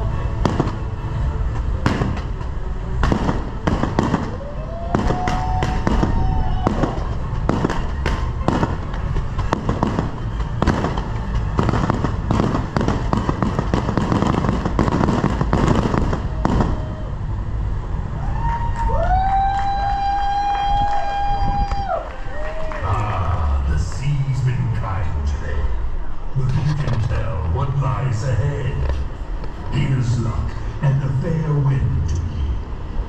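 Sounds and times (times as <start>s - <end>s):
fireworks bangs and crackling: 0.3s - 17.1s
firework whistle: 3.2s - 8.8s, 9.4s - 17.2s.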